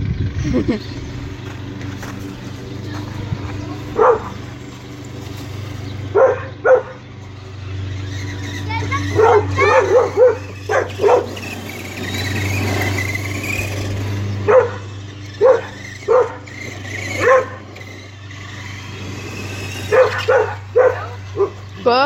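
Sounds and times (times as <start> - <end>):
dog barking: 4.0 - 4.4, 6.1 - 7.0, 9.1 - 11.3, 14.5 - 14.8, 15.4 - 16.4, 17.2 - 17.6, 19.9 - 21.6.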